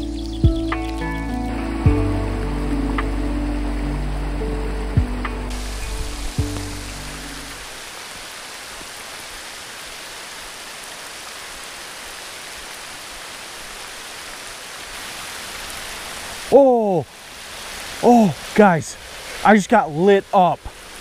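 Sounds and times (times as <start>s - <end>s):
heavy rain on a river: 0.0s - 21.0s
man shouting: 16.5s - 17.0s, 18.0s - 18.9s.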